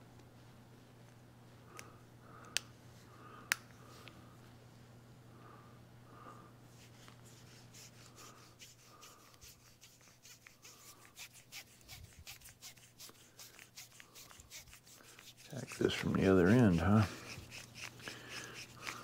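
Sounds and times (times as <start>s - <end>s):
steady low hum: 0.0s - 19.0s
small parts scratching and clicking: 8.6s - 19.0s.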